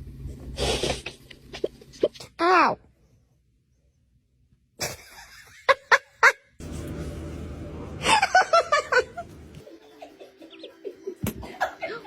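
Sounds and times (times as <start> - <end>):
low rumbling noise: 6.6 - 9.6.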